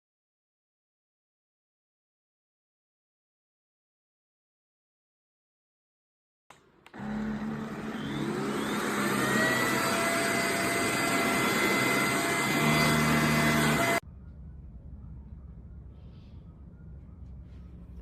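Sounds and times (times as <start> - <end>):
vacuum cleaner switch click: 6.5 - 7.5
vacuum cleaner motor whine: 6.9 - 14.0.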